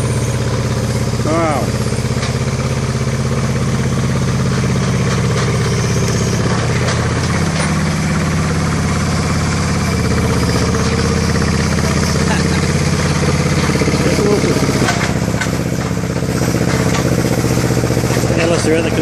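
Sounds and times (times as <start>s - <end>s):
crane engine running: 0.0s - 19.0s.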